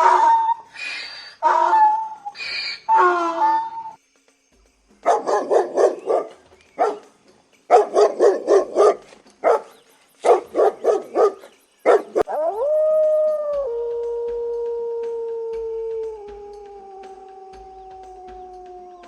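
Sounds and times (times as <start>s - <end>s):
dog barking: 0.0s - 0.6s, 5.0s - 7.1s, 7.7s - 12.4s
dog howling: 0.0s - 0.7s, 1.4s - 4.0s, 10.3s - 19.0s.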